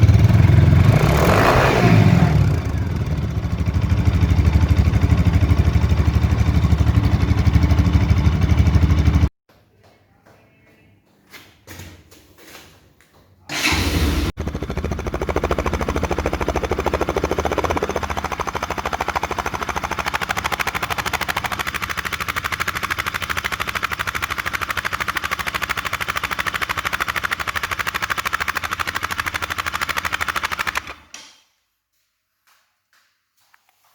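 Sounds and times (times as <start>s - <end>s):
motorcycle engine idling: 0.0s - 1.0s, 2.3s - 9.3s, 13.6s - 31.1s.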